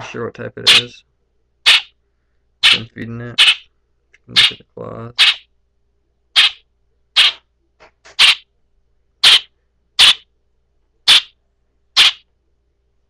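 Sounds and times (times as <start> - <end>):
young bird rasping calls: 1.7 - 1.9, 2.6 - 3.6, 4.4 - 4.6, 5.2 - 5.4, 6.4 - 6.6, 7.2 - 7.4, 8.1 - 8.4, 9.2 - 10.2, 11.1 - 11.3, 12.0 - 12.2.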